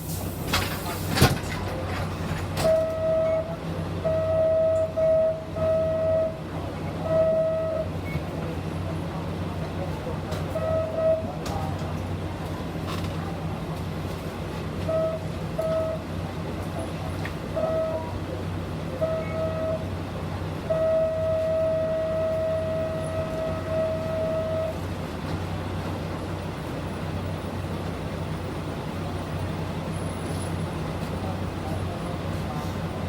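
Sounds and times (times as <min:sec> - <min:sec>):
bus engine humming: 0:00.0 - 0:33.0.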